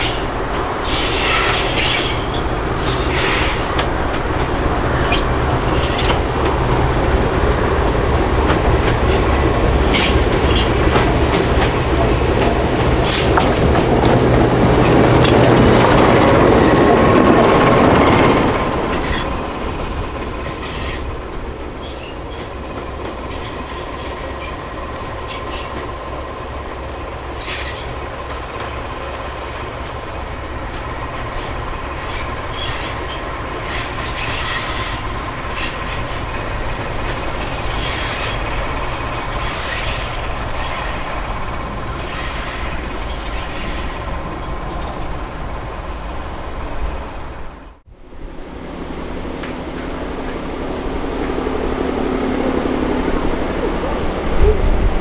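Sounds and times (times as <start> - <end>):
wheels clicking over rail joints: 0.0 - 45.8
diesel train engine: 0.0 - 55.0
steady wheel squeal: 0.8 - 3.8.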